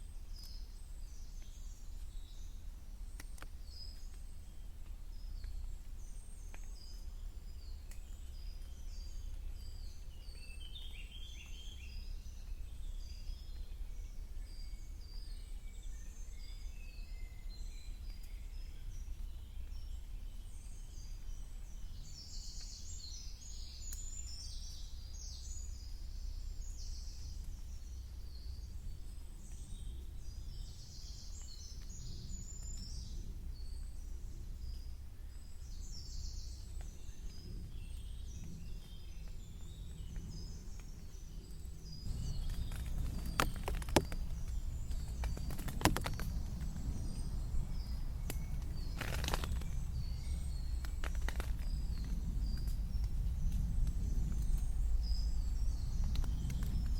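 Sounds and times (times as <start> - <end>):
songbirds chirping and warbling: 0.0 - 56.9
steady low rumble: 17.5 - 56.9.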